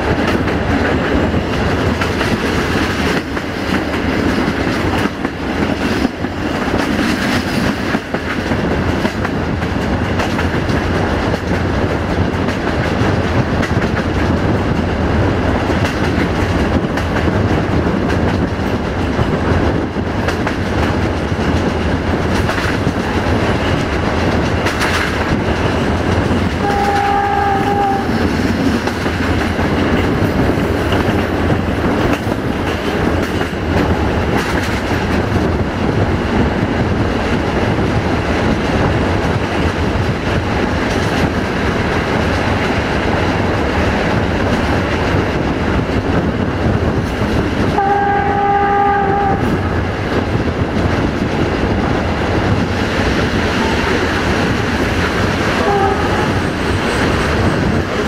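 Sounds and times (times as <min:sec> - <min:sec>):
train rumble: 0:00.0 - 0:58.0
locomotive horn: 0:26.6 - 0:28.2, 0:47.7 - 0:49.6, 0:55.6 - 0:56.4.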